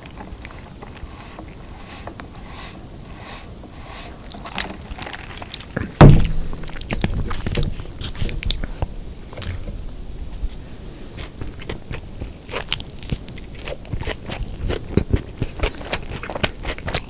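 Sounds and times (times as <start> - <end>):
chewing burger: 0.0 - 2.6, 4.1 - 6.0, 6.6 - 17.0
loud low thump: 6.0 - 7.3
crackly biting clicks: 11.0 - 17.0.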